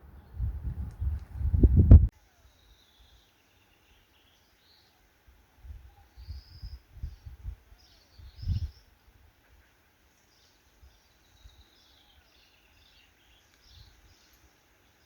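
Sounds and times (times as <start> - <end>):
rumbling bumps on microphone: 0.5 - 2.1
small birds chirping: 2.2 - 15.0.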